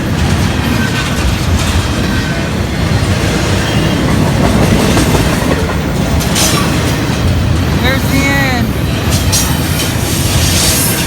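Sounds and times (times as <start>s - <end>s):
wheels clicking over rail joints: 0.0s - 8.0s
train rumbling past: 0.0s - 11.0s.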